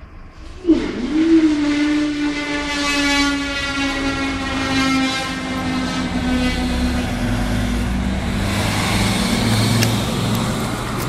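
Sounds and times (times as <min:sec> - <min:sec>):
sustained horn-like tone: 0:00.0 - 0:09.8
vehicle engines running: 0:03.4 - 0:11.0.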